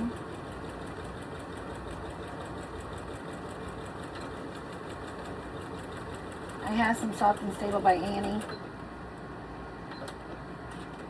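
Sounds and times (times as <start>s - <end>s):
sewing machine stitching: 0.0s - 8.6s.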